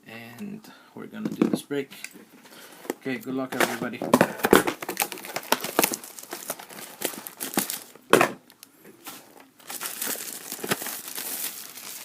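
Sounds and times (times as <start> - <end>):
plastic wrapping crinkling: 3.6 - 12.0
plastic wrapping ripping: 4.4 - 12.0.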